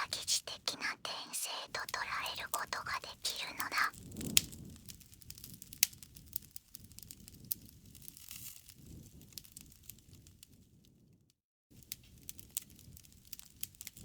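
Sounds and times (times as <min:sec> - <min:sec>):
low rumble of flames: 0:04.0 - 0:11.0, 0:11.8 - 0:14.0.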